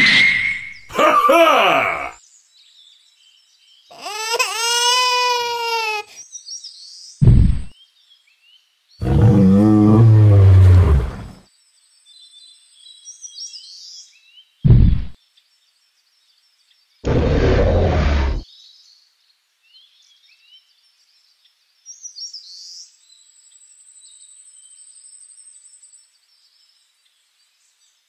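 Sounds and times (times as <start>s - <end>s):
heavy thud: 7.2s - 7.7s, 14.7s - 15.1s
long deep roar: 9.0s - 11.4s, 17.0s - 18.4s.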